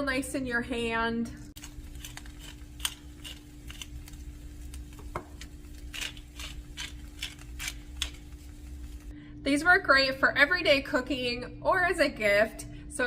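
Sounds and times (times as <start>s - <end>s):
grinder clicking and crunching: 1.6s - 9.1s.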